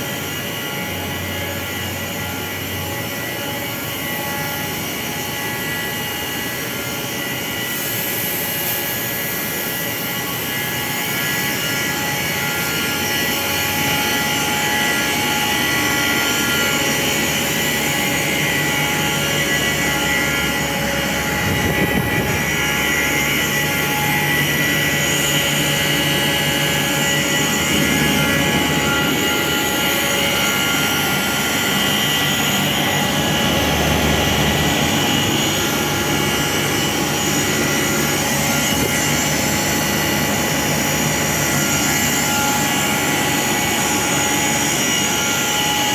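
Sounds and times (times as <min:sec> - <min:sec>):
machinery whining tones: 0:00.0 - 0:45.9
machinery whirring hum: 0:00.0 - 0:45.9
low machinery hum: 0:11.9 - 0:43.7.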